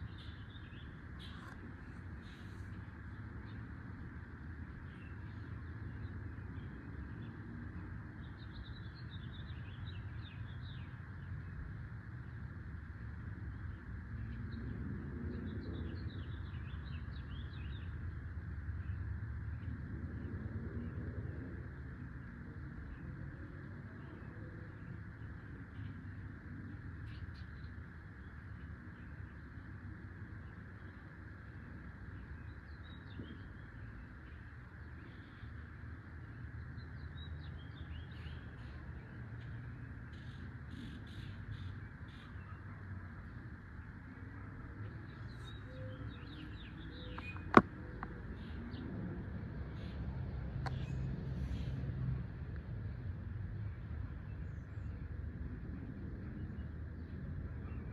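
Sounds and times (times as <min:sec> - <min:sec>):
small birds chirping: 0:00.0 - 0:07.2, 0:30.4 - 0:48.9
low rumbling background noise: 0:00.0 - 0:57.9.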